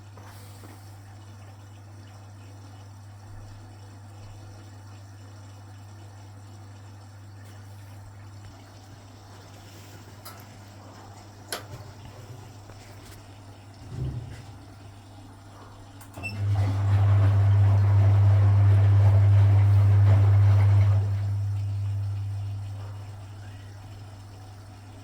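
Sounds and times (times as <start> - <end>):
washing machine low hum: 0.0 - 25.0
loud pump hum: 4.6 - 25.0
washing machine click: 11.4 - 12.1
washing machine thud: 13.8 - 14.6.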